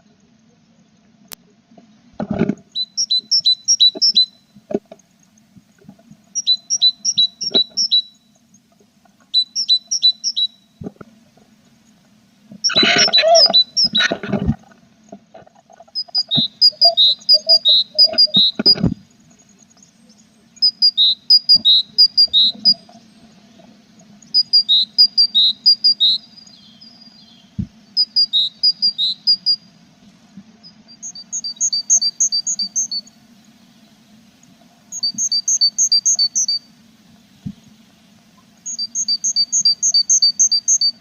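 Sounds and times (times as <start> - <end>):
chicks chirping: 16.0 - 18.9.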